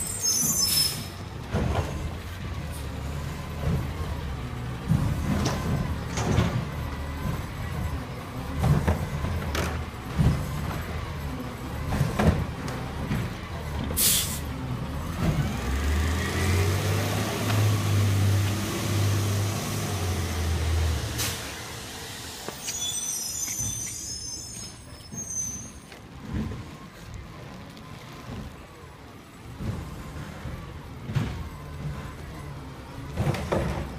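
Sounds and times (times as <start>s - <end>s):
garbage truck engine revving: 1.2s - 22.6s
air brake hiss: 14.0s - 14.5s, 21.2s - 21.6s, 22.3s - 24.8s.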